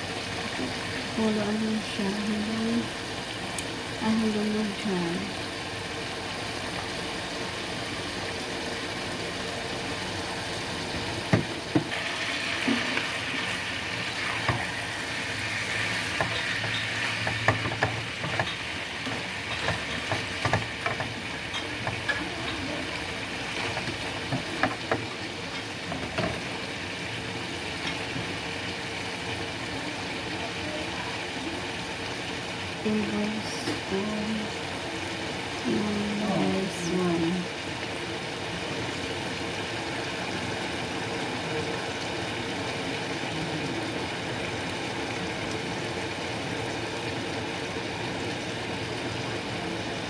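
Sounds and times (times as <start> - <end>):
chicken sizzling in a frying pan: 0.0 - 50.0
spatula knocking and scraping pan: 16.2 - 22.3.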